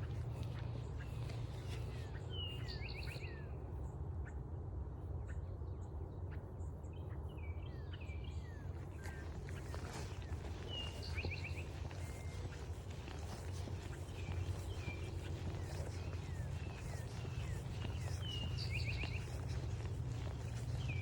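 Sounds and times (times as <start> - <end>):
footsteps on trail: 0.0 - 2.4, 8.5 - 21.0
songbird singing: 0.0 - 3.8, 6.8 - 21.0.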